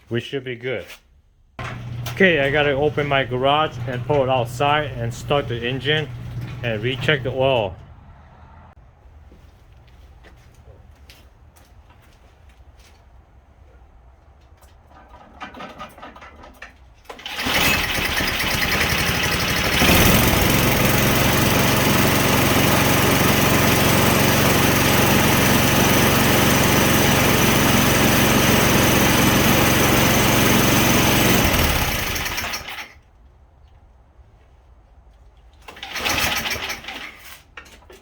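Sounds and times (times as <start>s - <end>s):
motor running: 17.7s - 32.7s.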